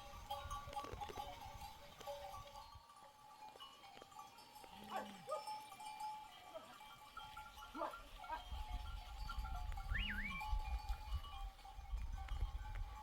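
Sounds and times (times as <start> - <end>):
sheep and goats bleating: 4.5 - 5.6.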